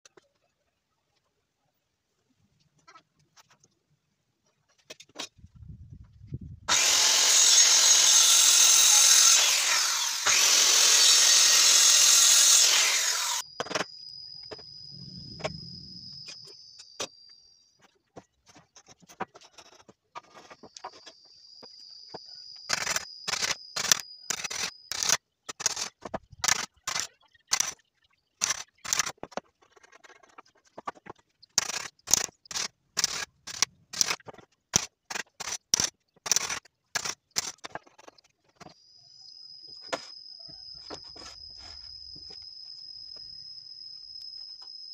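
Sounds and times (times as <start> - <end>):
power tool working wood: 6.7 - 13.4.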